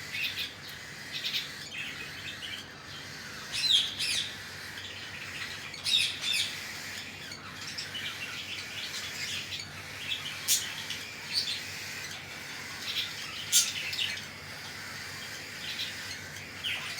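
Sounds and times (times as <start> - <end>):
cockatiels chirping: 0.0 - 16.9.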